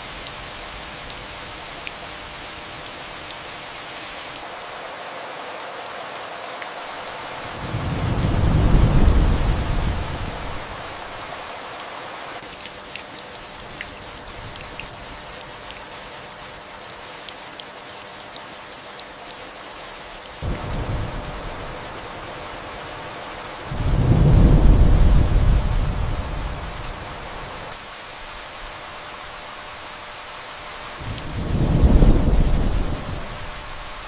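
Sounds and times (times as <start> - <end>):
steady rain: 0.0 - 34.0
distant thunder rumble: 7.5 - 11.2, 20.4 - 22.9, 23.6 - 27.4, 31.0 - 34.0
raindrops ticking: 12.4 - 21.4.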